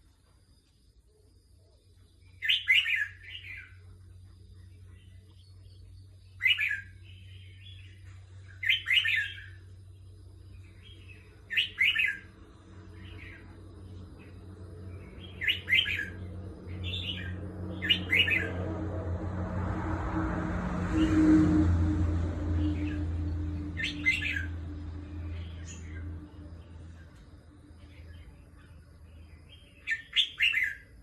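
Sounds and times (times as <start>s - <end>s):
low hum: 9.3s - 29.7s.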